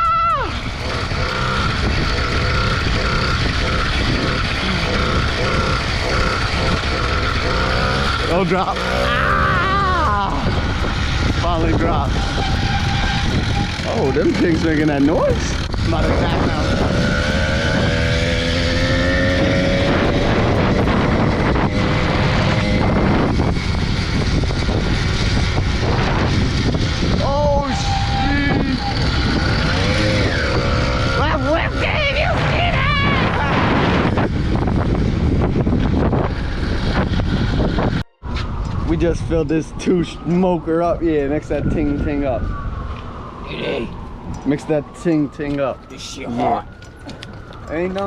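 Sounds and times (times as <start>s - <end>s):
wind and road noise: 0.0s - 48.0s
two-stroke engine running: 0.5s - 27.4s.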